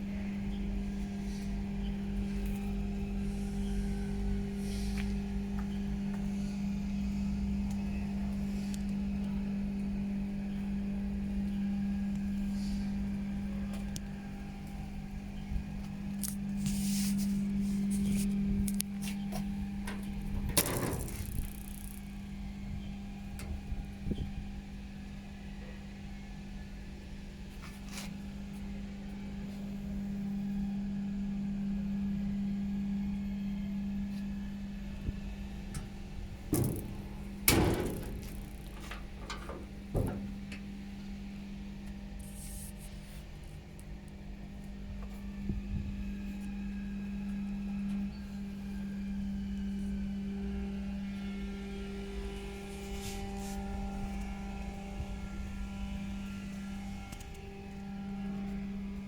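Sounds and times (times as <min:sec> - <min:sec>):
machinery humming: 0:17.4 - 0:24.1, 0:32.2 - 0:43.5
clicks and knocks: 0:36.5 - 0:40.6.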